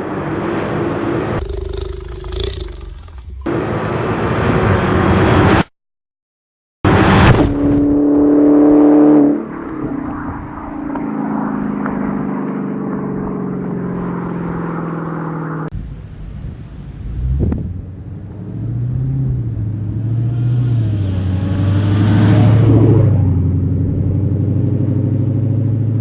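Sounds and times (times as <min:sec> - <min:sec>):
car engine revving hard: 0:18.6 - 0:23.1.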